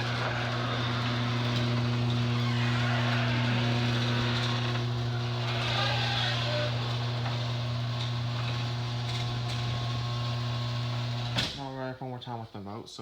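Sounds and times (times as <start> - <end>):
garage door opener motor hum: 0.0 - 11.6.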